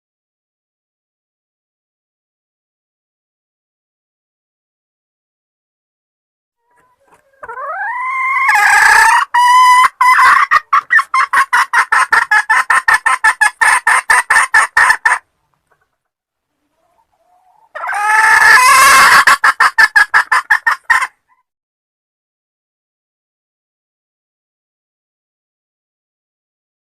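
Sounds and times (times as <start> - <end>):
junglefowl hen clucking call: 6.6 - 15.9, 16.6 - 21.5.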